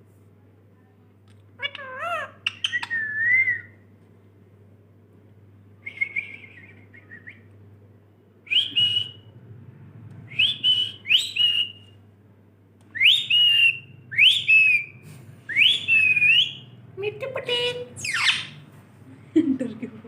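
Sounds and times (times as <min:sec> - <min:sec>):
parrot whistling: 0:01.8 - 0:03.8, 0:10.3 - 0:11.9, 0:13.0 - 0:16.7, 0:18.0 - 0:18.6.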